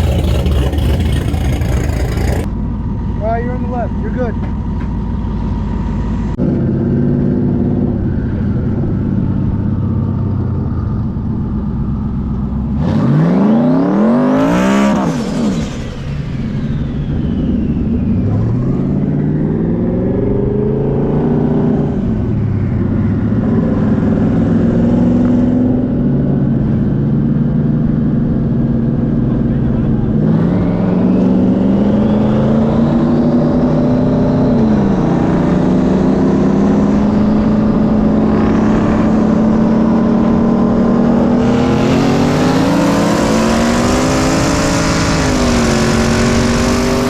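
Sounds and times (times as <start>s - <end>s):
car accelerating past: 0.0s - 2.5s, 30.1s - 47.0s
second engine winding up: 0.0s - 2.5s
engine droning: 0.0s - 13.3s.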